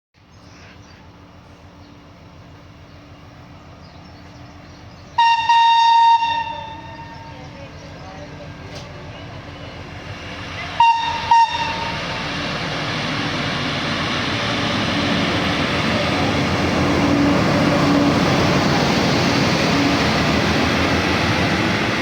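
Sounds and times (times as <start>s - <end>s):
train wheels rumbling on rail: 0.2s - 22.0s
train horn blast: 5.2s - 7.5s, 10.7s - 12.2s.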